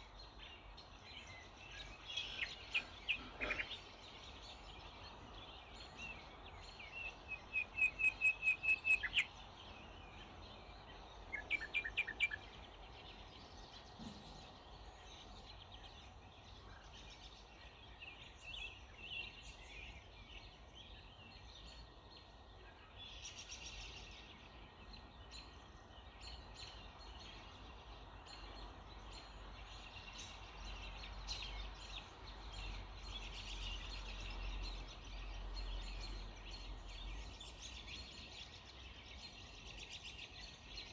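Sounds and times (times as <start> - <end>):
bird song with repeated high notes: 0.0 - 40.9
faint bird chirps: 0.0 - 40.9.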